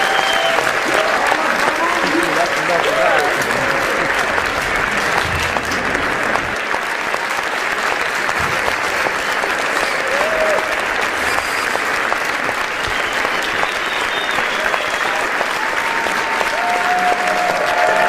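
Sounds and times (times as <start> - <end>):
shout from crowd: 0.0 - 2.0, 10.0 - 10.7, 14.7 - 18.0
audience applauding: 0.0 - 18.0.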